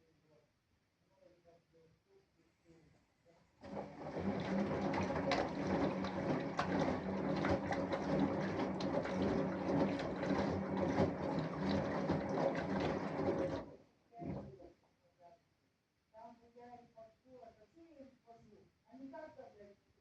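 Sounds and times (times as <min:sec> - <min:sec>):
washing machine drum humming: 0:03.6 - 0:14.6
water and laundry sloshing: 0:03.6 - 0:14.6.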